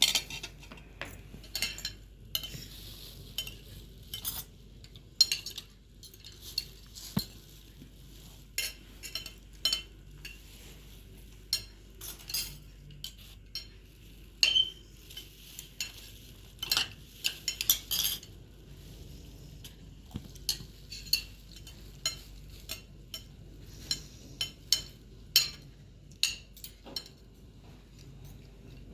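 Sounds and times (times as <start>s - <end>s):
metal utensil clinking on dishes: 0.0s - 7.4s, 8.6s - 10.5s, 11.5s - 13.8s, 14.4s - 18.4s, 20.4s - 27.3s.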